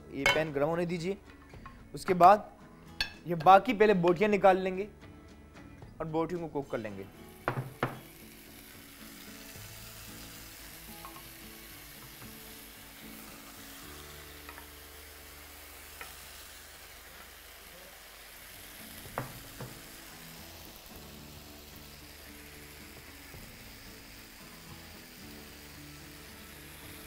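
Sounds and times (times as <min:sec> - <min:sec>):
chicken sizzling in oil: 0:07.1 - 0:27.0.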